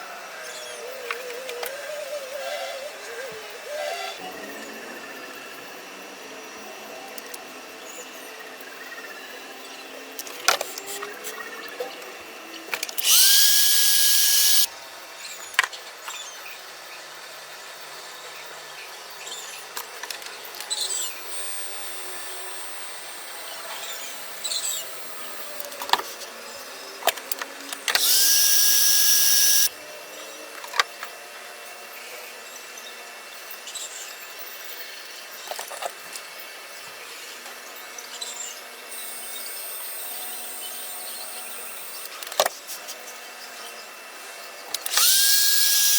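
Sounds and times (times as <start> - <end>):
power tool whining: 12.2 - 14.7, 20.6 - 29.7, 38.3 - 42.4, 44.6 - 45.9.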